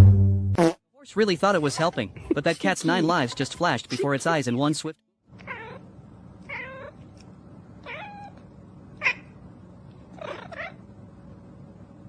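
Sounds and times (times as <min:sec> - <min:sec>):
steady low hum: 0:01.1 - 0:12.0
cat meowing: 0:05.4 - 0:05.8, 0:06.4 - 0:07.0, 0:07.8 - 0:08.4.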